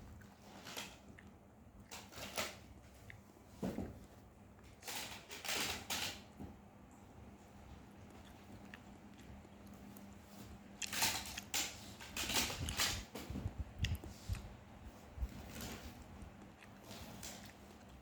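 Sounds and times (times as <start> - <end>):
close-up chewing: 0.0 - 2.1, 7.9 - 11.8, 13.7 - 18.0.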